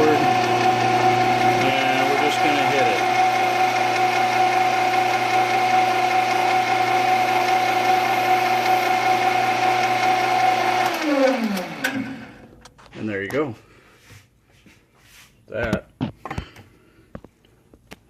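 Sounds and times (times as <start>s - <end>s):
metal lathe motor whine: 0.0s - 12.4s.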